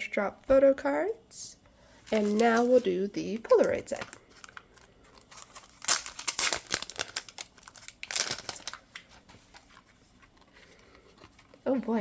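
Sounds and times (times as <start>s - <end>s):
packaging rustling and tearing: 2.1s - 10.6s.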